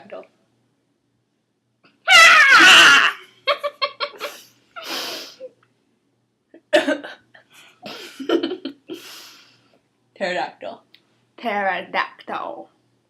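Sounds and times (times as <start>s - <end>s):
girl squawking: 2.1s - 3.2s
girls giggling: 2.6s - 4.9s, 7.9s - 9.1s.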